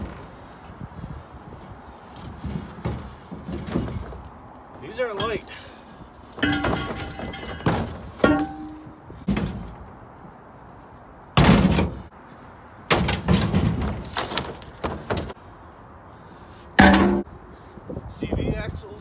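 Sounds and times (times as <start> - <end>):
scrap metal clanking onto pile: 6.4 - 8.9.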